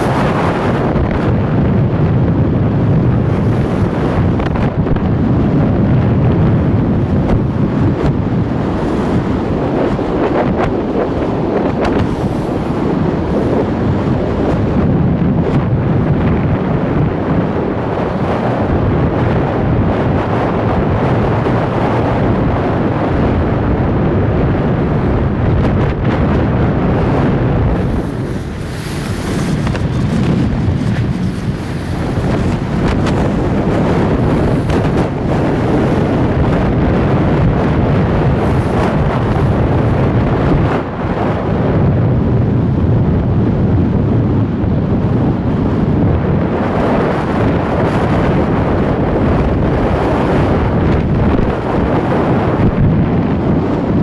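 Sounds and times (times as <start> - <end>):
sea waves washing: 0.0 - 1.4, 24.8 - 41.1
wind buffeting microphone: 0.0 - 54.0.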